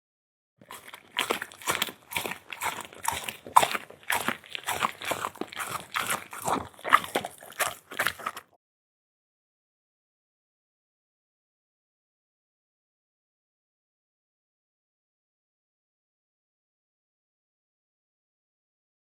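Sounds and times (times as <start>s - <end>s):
pet chewing and crunching food: 0.6s - 8.6s.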